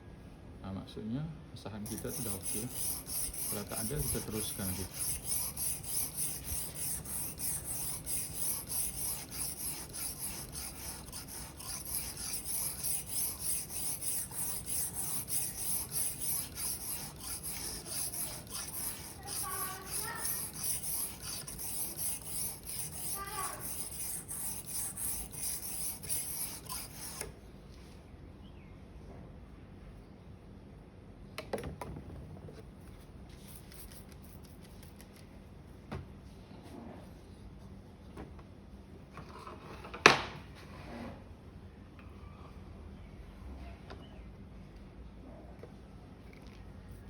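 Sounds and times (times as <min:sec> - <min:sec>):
knife scraping on whetstone: 0:01.9 - 0:27.3.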